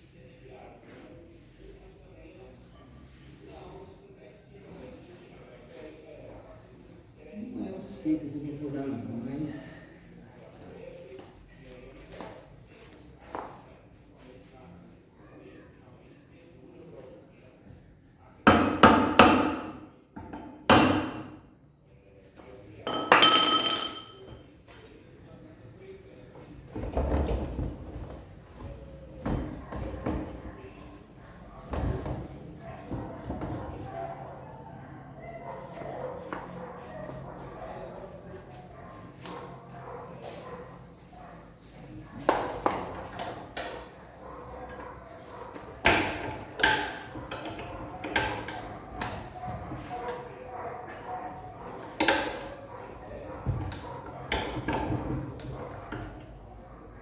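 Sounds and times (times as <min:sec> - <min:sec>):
knocks and clatters of tools: 0:44.6 - 0:50.2, 0:53.3 - 0:56.4.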